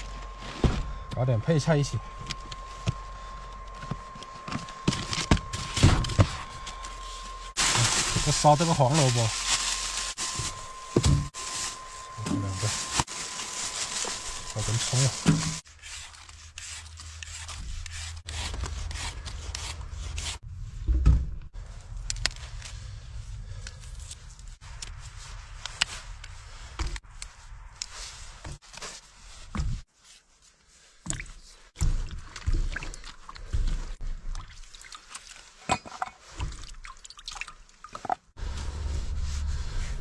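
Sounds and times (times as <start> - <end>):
water dripping and pouring: 31.1 - 38.3.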